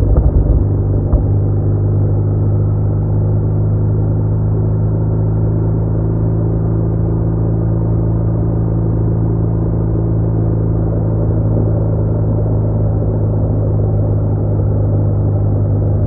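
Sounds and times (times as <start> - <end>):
motorcycle engine droning: 0.0 - 4.0
road and wind noise: 0.0 - 16.0.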